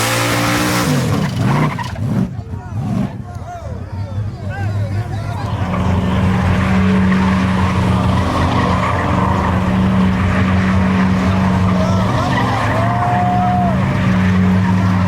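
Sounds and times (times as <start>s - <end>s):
car engine revving high: 0.0s - 1.5s, 5.3s - 15.0s
spinning tyres hissing: 5.0s - 15.0s
tyres squealing: 5.0s - 15.0s.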